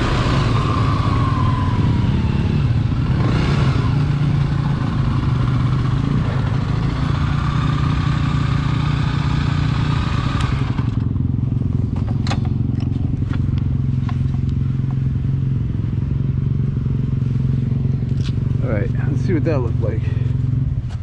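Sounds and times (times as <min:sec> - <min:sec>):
dirt bike engine running: 0:00.0 - 0:21.0.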